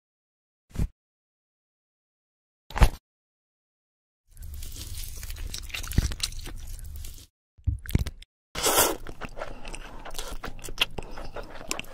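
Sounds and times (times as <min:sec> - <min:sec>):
crunchy chewing and biting: 0:04.4 - 0:07.3, 0:08.6 - 0:11.9.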